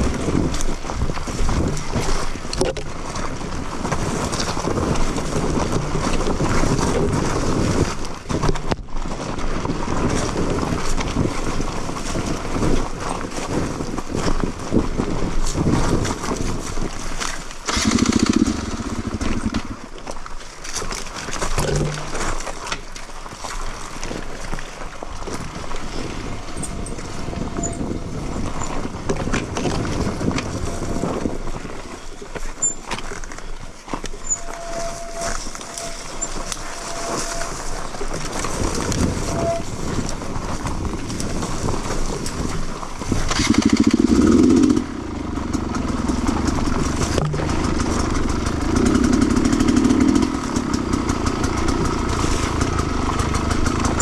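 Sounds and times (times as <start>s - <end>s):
motorcycle engine revving: 17.7s - 19.9s, 25.3s - 31.3s, 34.2s - 54.0s.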